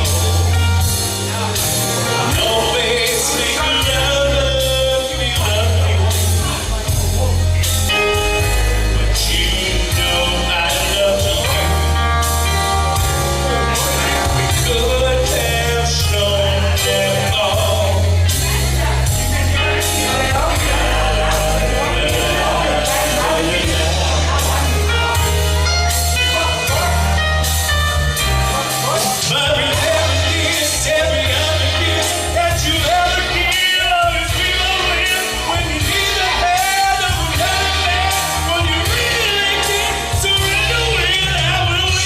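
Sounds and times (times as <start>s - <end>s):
lead vocal singing: 0.0s - 27.6s, 28.2s - 42.0s
live rock band playing: 0.0s - 42.0s.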